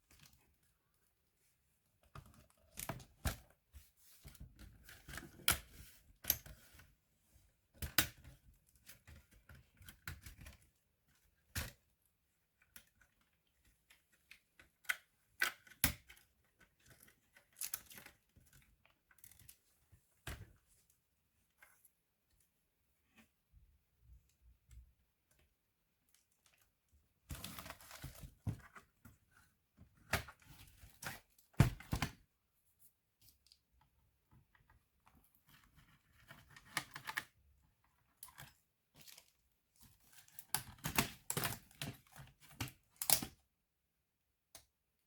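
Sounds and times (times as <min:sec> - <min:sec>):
plastic laptop parts clicking: 0:40.6 - 0:43.4.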